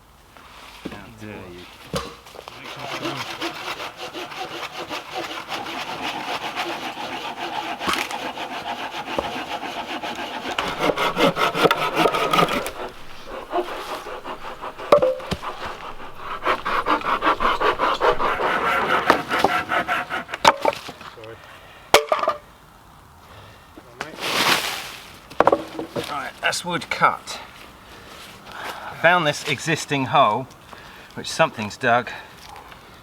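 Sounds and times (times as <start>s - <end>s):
hand saw cutting wood: 2.4s - 20.9s.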